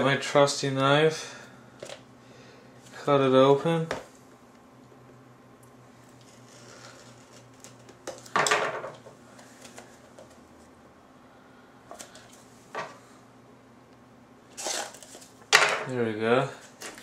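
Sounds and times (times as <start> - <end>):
knife scraping plastic wrap: 6.1 - 8.3, 14.5 - 15.3, 16.6 - 17.0
plastic and cardboard handling: 14.6 - 15.4, 16.6 - 17.0.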